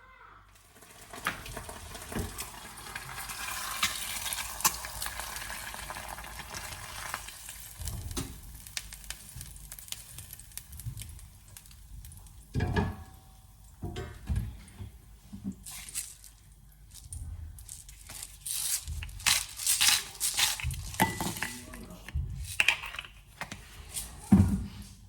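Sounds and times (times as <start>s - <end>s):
food sizzling in a frying pan: 0.6s - 12.7s.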